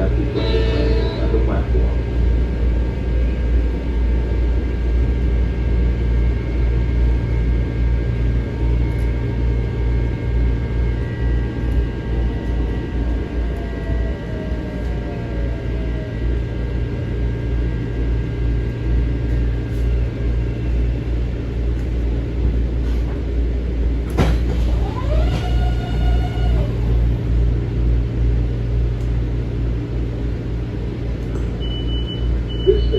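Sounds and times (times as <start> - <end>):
rising whine: 0.0 - 22.2
railcar equipment rumble and hum: 0.0 - 32.9.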